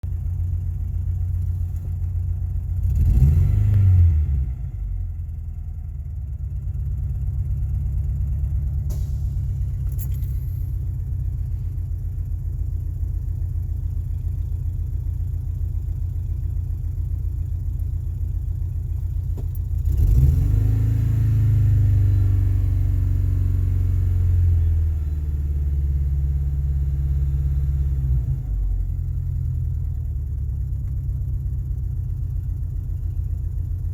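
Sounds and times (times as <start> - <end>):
engine idling roughly: 0.0 - 3.0, 4.8 - 20.2, 28.5 - 33.9
engine revving: 2.7 - 5.0, 19.8 - 28.6.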